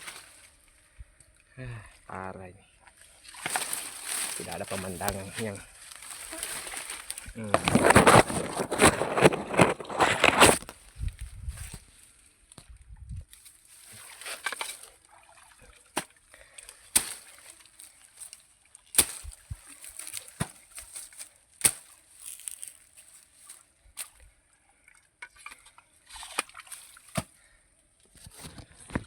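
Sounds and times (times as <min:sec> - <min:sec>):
water sloshing and splashing: 0:02.8 - 0:10.7, 0:13.3 - 0:24.2, 0:24.8 - 0:27.4.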